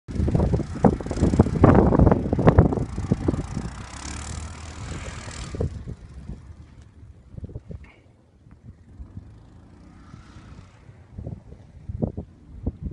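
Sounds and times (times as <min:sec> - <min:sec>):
quad bike engine rumble: 0:00.1 - 0:12.9.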